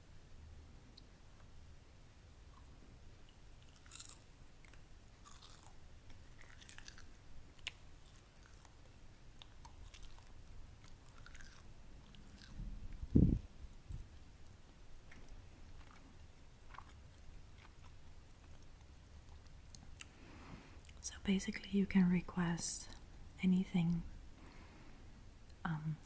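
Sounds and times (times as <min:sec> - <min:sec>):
chewing food: 0:02.4 - 0:13.0, 0:14.0 - 0:20.2
soft crisp crunches: 0:14.4 - 0:20.2.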